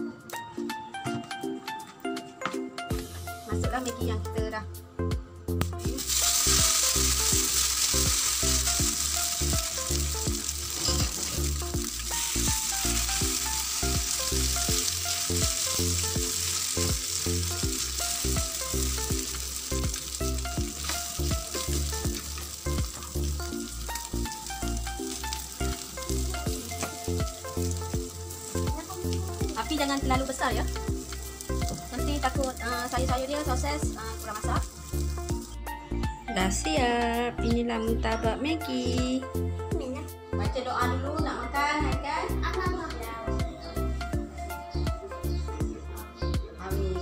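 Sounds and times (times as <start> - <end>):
background music with steady beat: 0.0 - 47.0
food sizzling in hot oil: 5.6 - 35.8.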